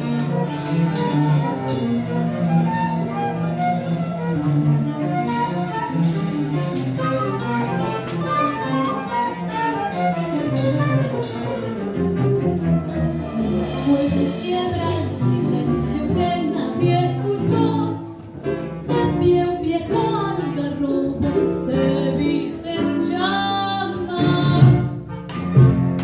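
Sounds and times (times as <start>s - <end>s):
bowed strings music: 0.0s - 26.0s.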